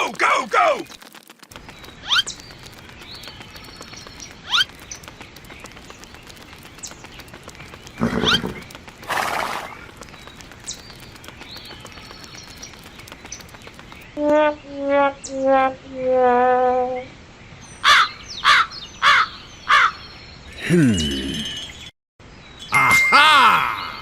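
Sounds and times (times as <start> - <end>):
rising bird chirps: 1.6 - 21.9
loud animal call: 8.0 - 9.8.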